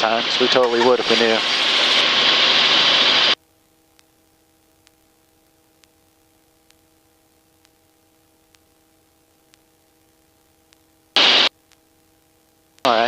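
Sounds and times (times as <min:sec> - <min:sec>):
faint electrical hum: 0:03.2 - 0:13.0.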